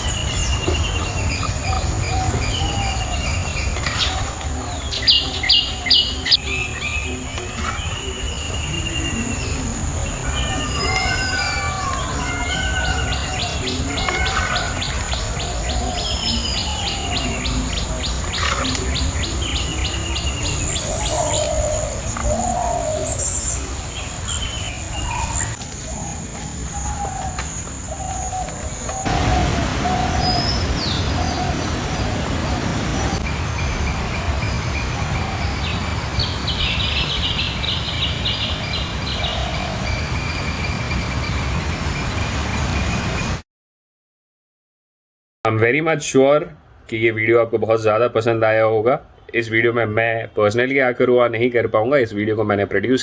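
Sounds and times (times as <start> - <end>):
insects shrilling: 0.0 - 37.7
birds chirping and calling: 0.0 - 43.4
low outdoor rumble: 11.4 - 43.4.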